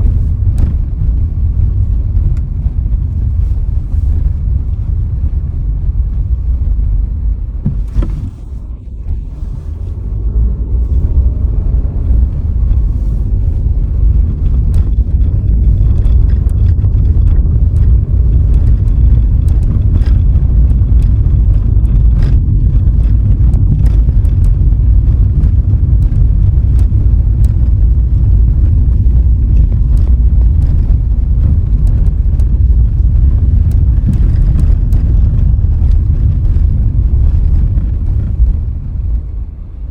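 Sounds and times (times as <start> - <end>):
road and wind noise rumble: 0.0 - 39.9
small clicks and ticks: 12.0 - 39.2.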